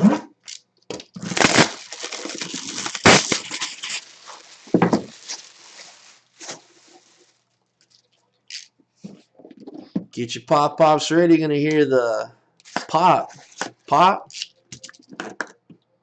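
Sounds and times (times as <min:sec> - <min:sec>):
packaging tearing and crinkling: 0:00.5 - 0:07.4.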